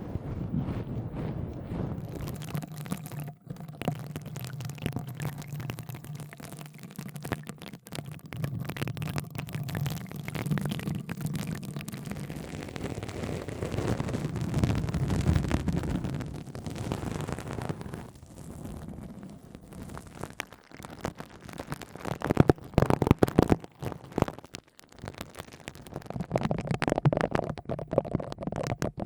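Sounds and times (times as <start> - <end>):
steady low rumble: 0.0 - 2.4
crackles and light taps: 0.3 - 29.0.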